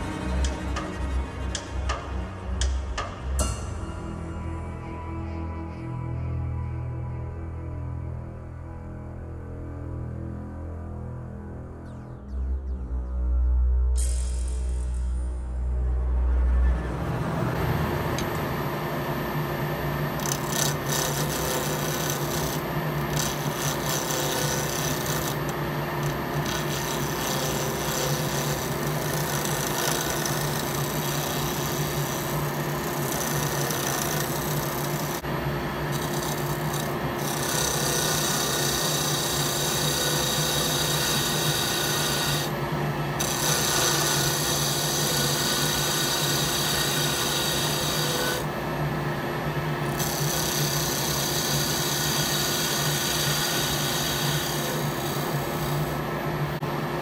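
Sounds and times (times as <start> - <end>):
lathe motor hum: 16.3 - 56.8
chisel scraping wood on lathe: 20.2 - 35.2, 35.9 - 42.5, 43.2 - 48.4, 49.9 - 56.0.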